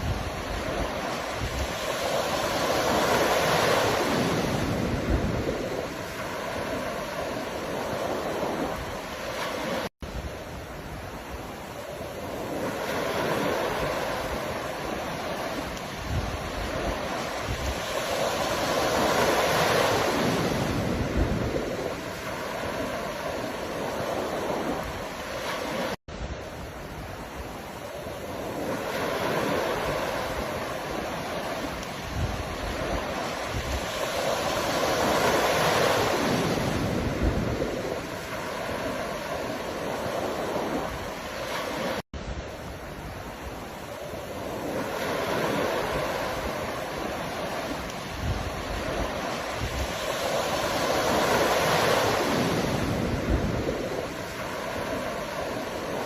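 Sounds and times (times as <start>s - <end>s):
ocean waves breaking: 0.0s - 56.0s.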